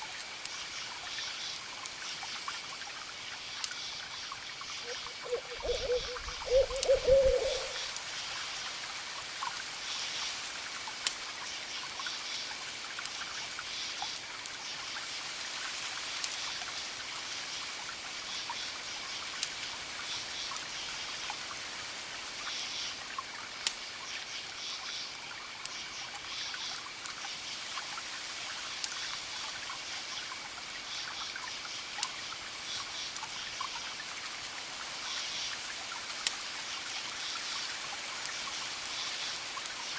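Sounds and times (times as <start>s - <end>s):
crickets chirping: 3.2s - 8.0s
owl hooting: 4.9s - 7.9s
campfire crackling and popping: 10.5s - 16.6s, 22.6s - 23.9s, 26.7s - 31.1s, 35.2s - 38.7s.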